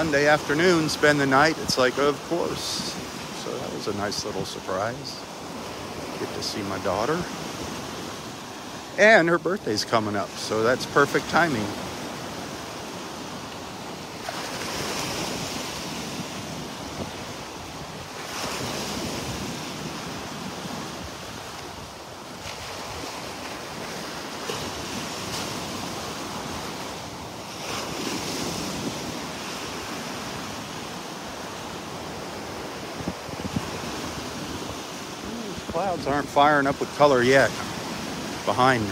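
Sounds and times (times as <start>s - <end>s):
surf breaking on beach: 0.0s - 38.9s
wind rumbling on microphone: 14.2s - 31.0s, 31.9s - 36.3s.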